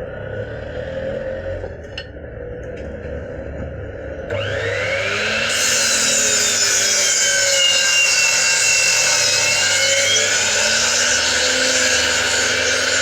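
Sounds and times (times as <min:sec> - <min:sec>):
power tool grinding wood: 0:04.3 - 0:13.0.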